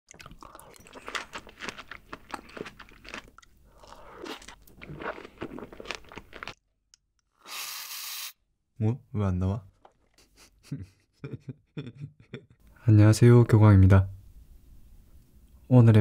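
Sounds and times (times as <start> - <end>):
wet crunchy chewing: 0.1 - 6.6.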